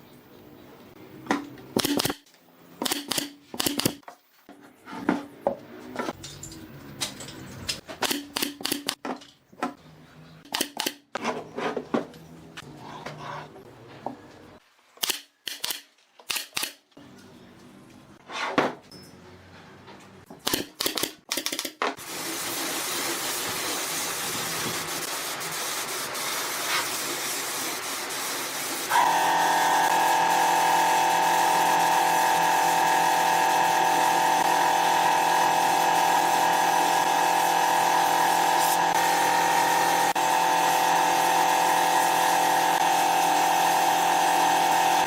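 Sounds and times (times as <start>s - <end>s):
power tool motor whining: 28.9s - 45.0s.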